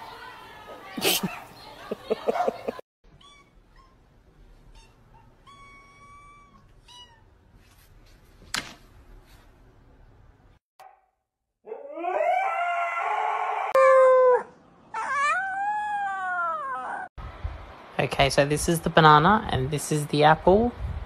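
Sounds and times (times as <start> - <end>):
dog howling: 11.6 - 17.1.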